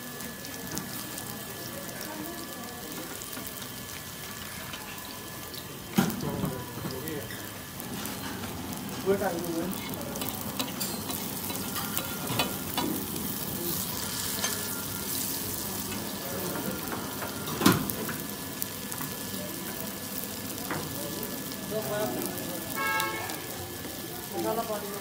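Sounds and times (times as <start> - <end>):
patties sizzling in oil: 0.0 - 25.0.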